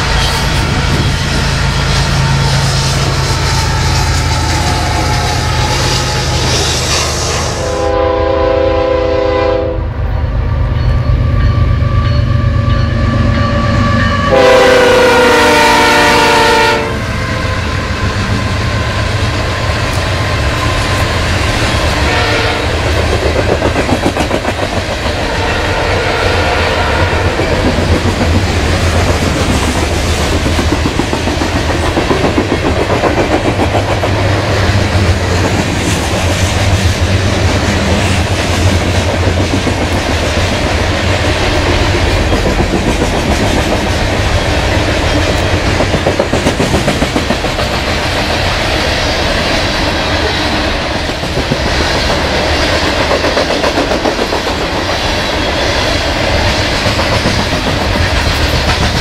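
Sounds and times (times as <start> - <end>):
freight cars rumbling past: 0.0 - 7.8
locomotive air horn blasts: 1.5 - 10.0, 13.6 - 17.5, 22.0 - 22.9, 25.2 - 27.4
train wheels clacking over rail joints: 19.2 - 25.4, 26.6 - 59.0.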